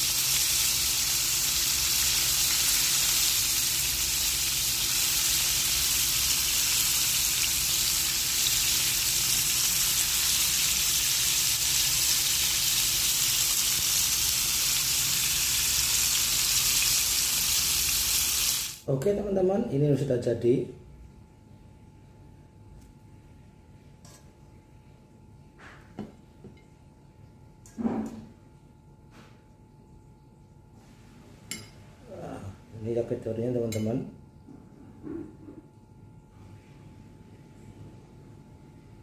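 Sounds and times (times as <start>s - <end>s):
chicken sizzling in hot oil: 0.0s - 18.8s
faint low hum: 18.9s - 39.0s.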